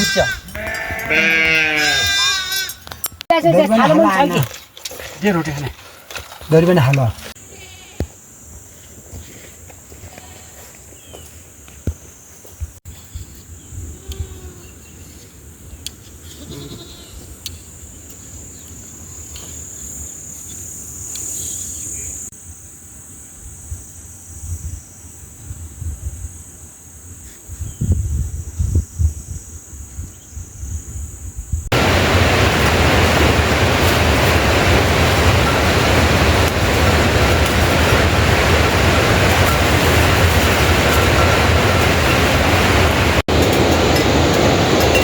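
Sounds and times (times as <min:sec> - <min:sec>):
goats and sheep bleating: 0:00.0 - 0:02.8, 0:07.4 - 0:08.1, 0:10.0 - 0:10.7, 0:16.4 - 0:17.2
high drone of insects: 0:05.2 - 0:45.0.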